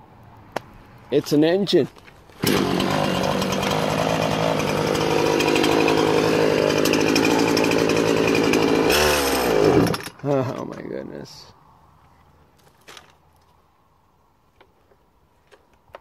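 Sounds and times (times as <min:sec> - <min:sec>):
gas chainsaw running: 0:02.4 - 0:10.3.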